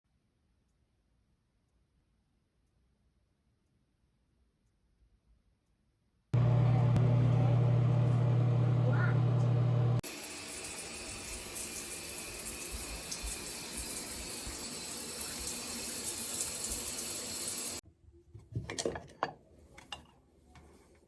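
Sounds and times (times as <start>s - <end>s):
tap running into sink: 10.8s - 17.8s.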